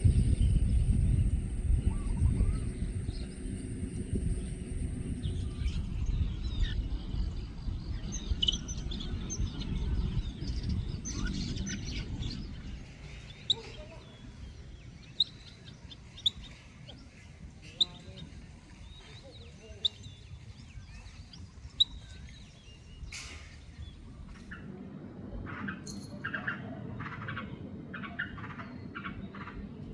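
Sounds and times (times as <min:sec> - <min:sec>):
low rumble: 0:00.0 - 0:15.1
small birds chirping: 0:00.0 - 0:29.9
short sharp bird calls: 0:13.0 - 0:18.3.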